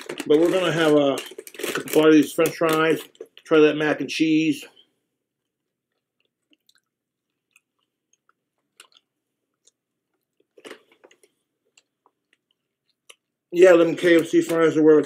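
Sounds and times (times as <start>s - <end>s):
small crunches: 0.0s - 3.6s, 5.4s - 15.0s
faint chewing of fries: 4.6s - 14.0s.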